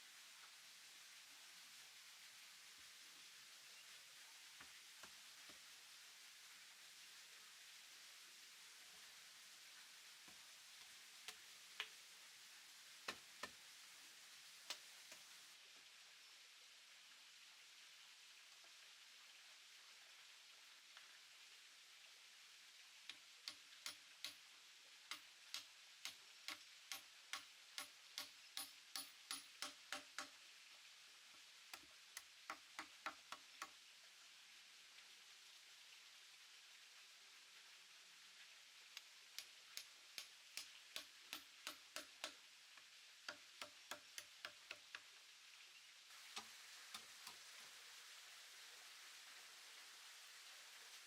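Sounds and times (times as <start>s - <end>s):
steady hiss: 0.0s - 19.9s, 20.5s - 51.0s
tool tapping on wood: 25.1s - 30.4s, 31.8s - 33.7s, 39.4s - 42.4s, 43.3s - 45.0s.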